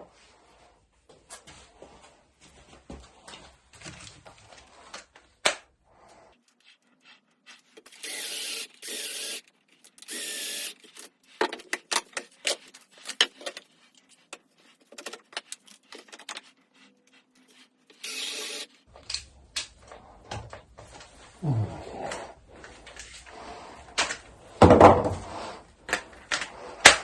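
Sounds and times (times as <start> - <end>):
power drill bursts: 7.9 - 9.4, 10.0 - 10.8, 18.0 - 18.7.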